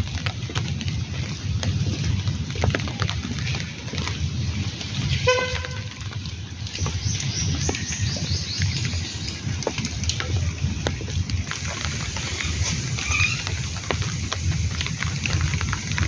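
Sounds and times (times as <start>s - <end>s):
low rumble: 0.0s - 16.0s
rain falling steadily: 0.0s - 16.0s
short horn toot: 5.2s - 6.0s
drip clicks: 5.6s - 15.4s.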